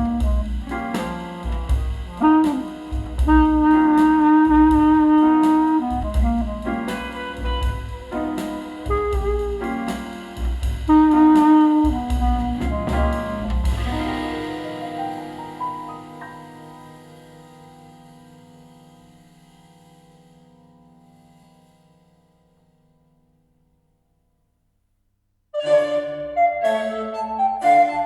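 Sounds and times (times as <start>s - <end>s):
jazz with saxophone lead: 0.0s - 18.3s.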